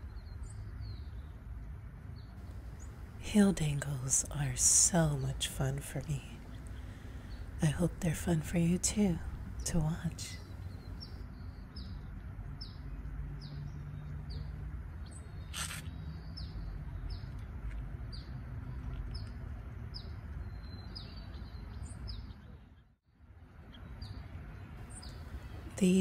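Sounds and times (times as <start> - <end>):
low background rumble: 0.0 - 13.4.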